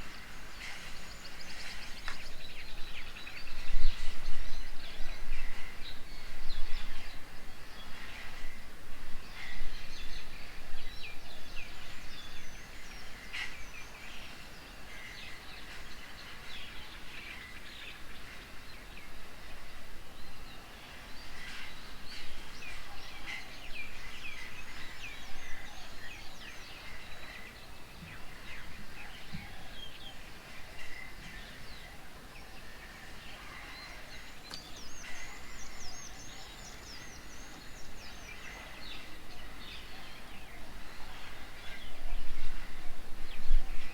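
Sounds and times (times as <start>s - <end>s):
birds chirping: 23.8s - 42.7s.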